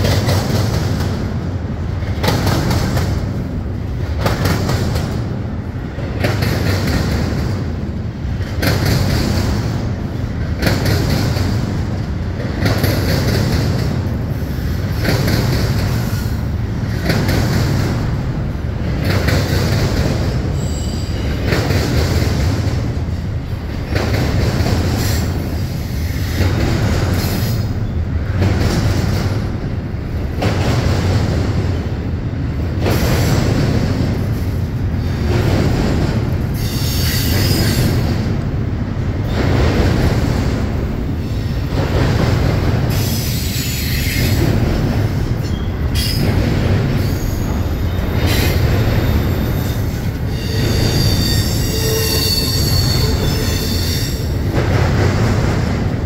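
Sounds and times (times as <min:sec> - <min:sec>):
freight train rumble: 0:00.0 - 0:56.0
high-pitched wheel squeals: 0:49.6 - 0:54.3.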